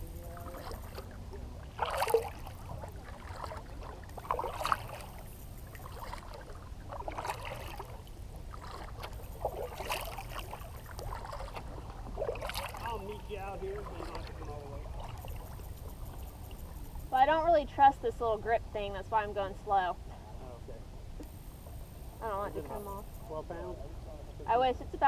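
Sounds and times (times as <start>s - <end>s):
paddle splashing in water: 0.0s - 17.3s
low rumble: 0.0s - 25.0s.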